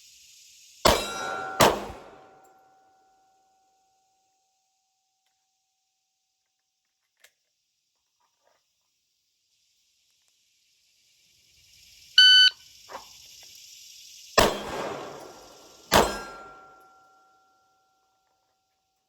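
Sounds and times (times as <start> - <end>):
pistol shots: 0.9 - 2.4, 14.4 - 16.5
ringing tone: 12.2 - 12.5
shot timer beep: 12.2 - 12.6.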